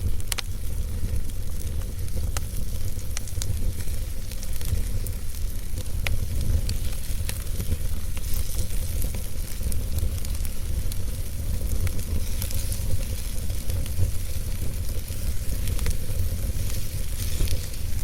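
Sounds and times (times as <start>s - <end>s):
fire flames rumbling: 0.0s - 18.0s
logs crackling and popping: 0.0s - 18.0s.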